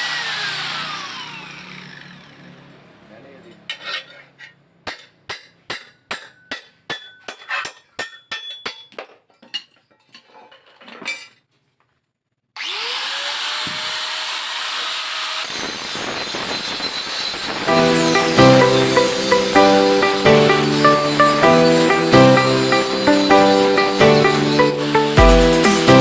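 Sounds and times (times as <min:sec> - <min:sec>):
hammer striking steel: 0:04.8 - 0:09.0, 0:17.4 - 0:26.0.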